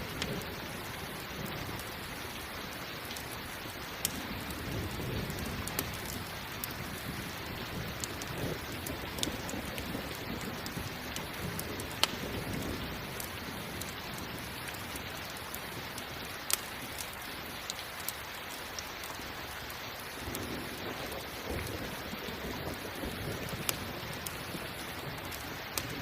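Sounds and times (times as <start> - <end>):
rain falling: 0.0 - 26.0
campfire crackling pops: 4.0 - 14.0, 14.7 - 18.2, 20.2 - 26.0.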